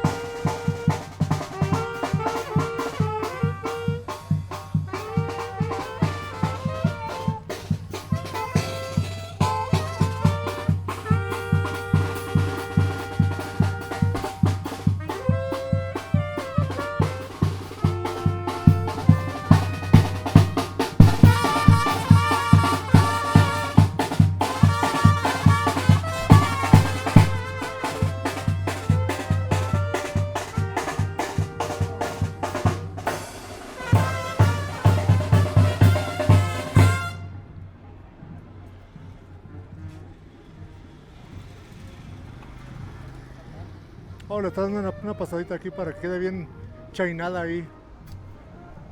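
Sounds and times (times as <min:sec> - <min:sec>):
bass drum and snare beat: 0:00.0 - 0:37.2
brass band playing: 0:00.0 - 0:37.6, 0:44.3 - 0:48.0.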